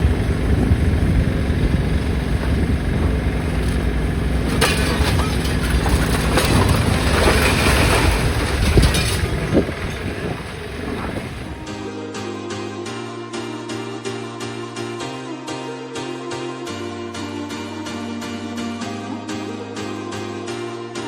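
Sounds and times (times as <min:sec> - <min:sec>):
clattering noise: 0:00.0 - 0:11.7
large engine running: 0:00.0 - 0:11.9.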